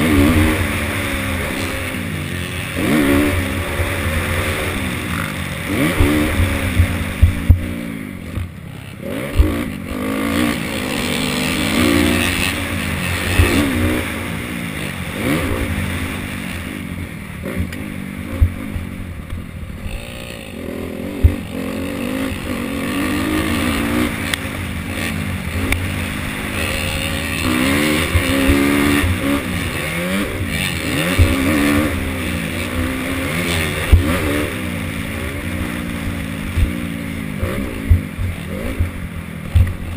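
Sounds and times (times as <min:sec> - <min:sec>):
dirt bike engines revving: 0:00.0 - 0:39.9
sharp thumps: 0:05.9 - 0:08.5, 0:09.3 - 0:09.6, 0:13.2 - 0:13.8, 0:21.0 - 0:21.6, 0:31.0 - 0:31.7, 0:37.4 - 0:39.9.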